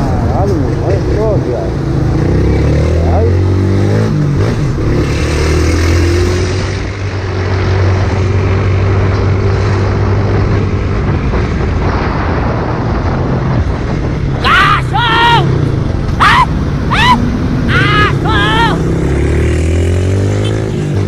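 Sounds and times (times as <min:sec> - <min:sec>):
wind noise: 0:06.0 - 0:19.0.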